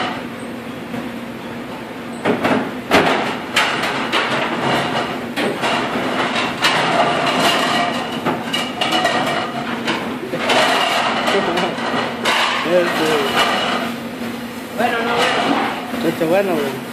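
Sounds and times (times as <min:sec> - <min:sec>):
ceramic plates clattering: 0:03.6 - 0:13.9.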